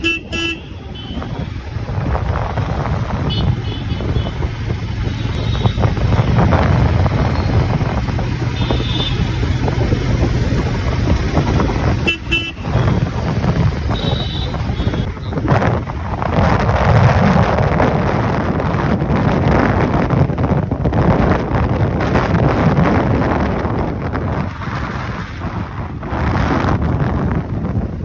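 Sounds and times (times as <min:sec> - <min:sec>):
vehicle horn beeps: 0:00.0 - 0:01.4, 0:12.0 - 0:13.0, 0:13.9 - 0:15.4
road traffic rumble: 0:00.0 - 0:28.0.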